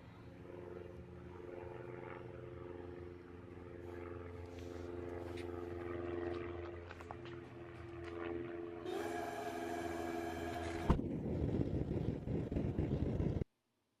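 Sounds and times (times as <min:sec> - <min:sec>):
forge machine hum: 0:08.9 - 0:11.0.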